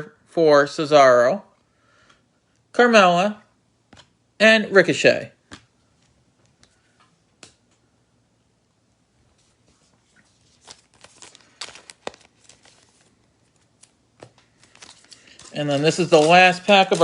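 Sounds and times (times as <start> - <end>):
wrapper crinkling and tearing: 10.3 - 17.0.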